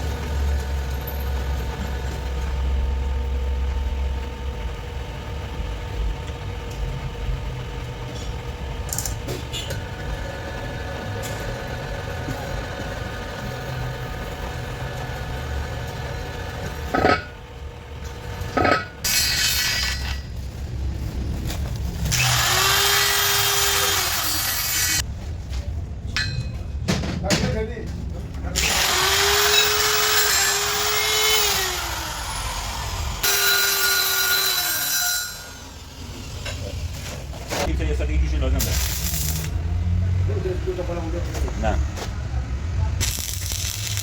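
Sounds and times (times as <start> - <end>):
low machine rumble: 0.0 - 19.1
power tool grinding: 21.9 - 25.0, 28.6 - 36.2.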